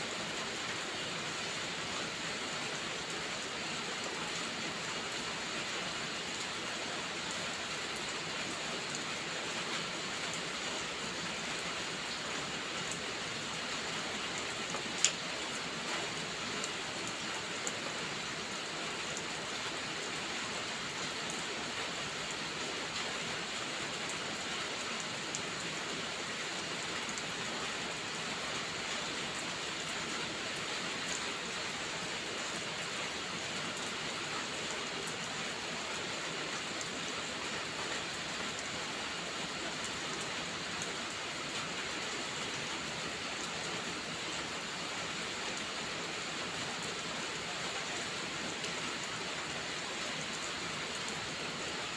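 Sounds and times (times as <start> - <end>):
heavy rain: 0.0 - 51.9
faint wood fire crackles: 13.7 - 17.7.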